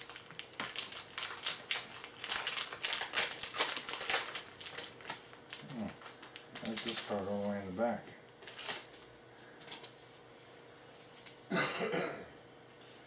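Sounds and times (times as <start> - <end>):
card pack wrappers crinkling: 0.0 - 7.6, 8.4 - 9.0.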